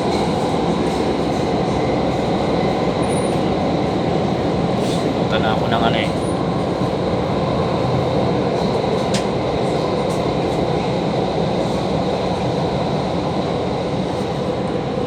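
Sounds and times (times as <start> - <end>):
metro train rumbling: 0.0 - 15.0.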